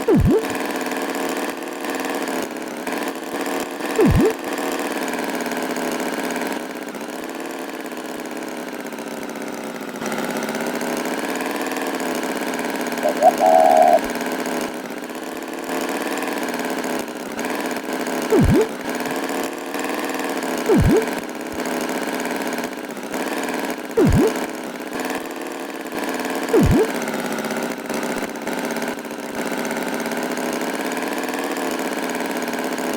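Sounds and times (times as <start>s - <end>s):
loud sweeping pitch drops: 0.0s - 0.6s, 4.0s - 4.4s, 13.0s - 14.1s, 18.3s - 18.7s, 20.7s - 21.1s, 24.0s - 24.4s, 26.6s - 26.9s.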